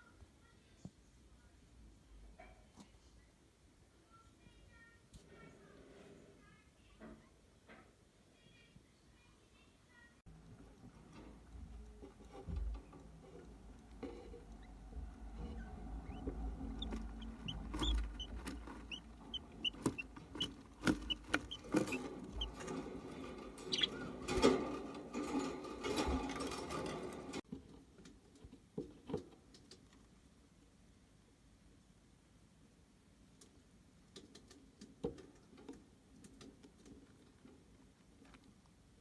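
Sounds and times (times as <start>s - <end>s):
rustling: 10.3s - 28.1s
chick cheeping: 16.0s - 22.6s, 23.7s - 24.0s.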